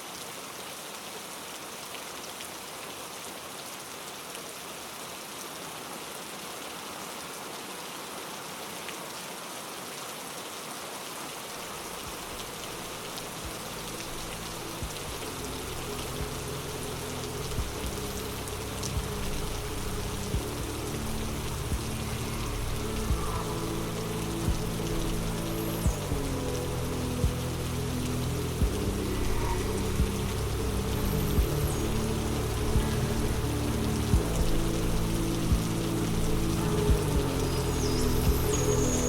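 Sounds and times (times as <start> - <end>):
steady rain falling: 0.0 - 39.0
soft low sustained music: 11.9 - 39.0.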